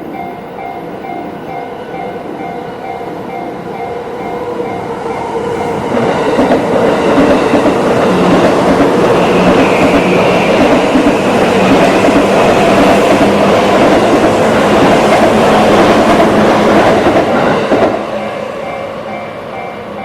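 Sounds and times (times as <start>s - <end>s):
crossing warning bell ringing: 0.0s - 20.0s.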